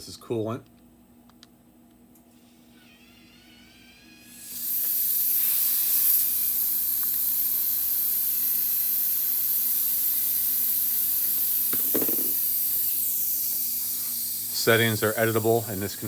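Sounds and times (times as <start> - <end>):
coolant spray hissing: 4.3 - 16.0.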